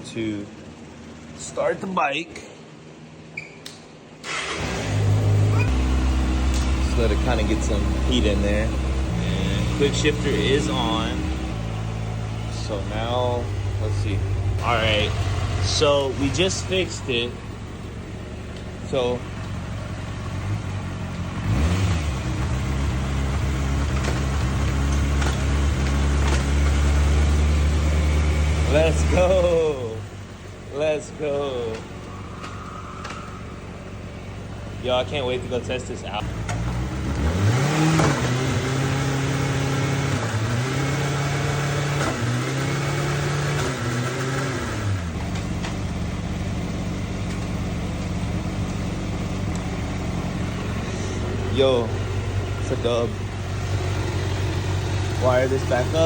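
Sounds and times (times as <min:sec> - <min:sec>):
motorcycle engine idling: 0:04.3 - 0:37.3, 0:44.9 - 0:56.0.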